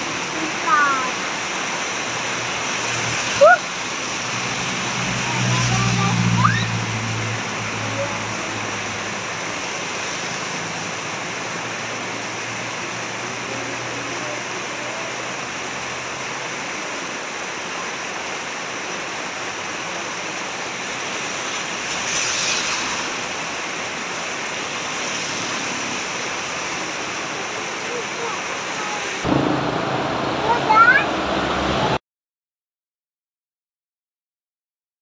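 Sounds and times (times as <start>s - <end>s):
heavy rain: 0.0s - 32.0s
low hum: 29.3s - 31.9s.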